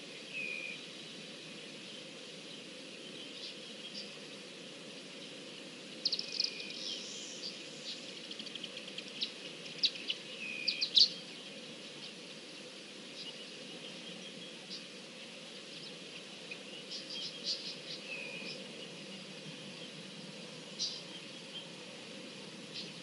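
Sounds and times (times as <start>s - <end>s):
faint bush ambience: 0.0s - 23.0s
small birds chirping: 0.0s - 23.0s.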